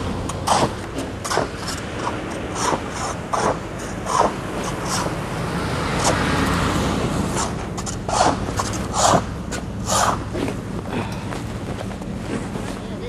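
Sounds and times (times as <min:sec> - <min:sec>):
vehicle passing on snowy street: 0:00.0 - 0:13.0
boots crunching through snow: 0:07.4 - 0:13.0.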